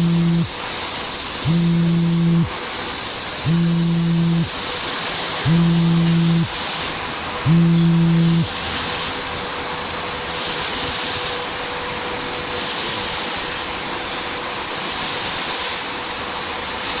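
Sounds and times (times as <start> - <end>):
faint steady hum: 0.0 - 0.6, 1.4 - 2.5, 3.5 - 4.6, 5.4 - 6.6, 7.5 - 8.6.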